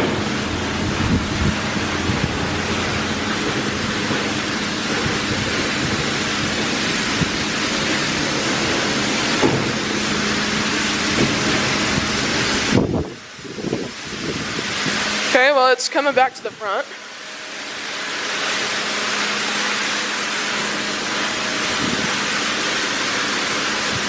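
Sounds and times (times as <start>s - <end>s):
low machine hum: 0.0s - 17.6s
car wash water spray hiss: 0.0s - 24.0s.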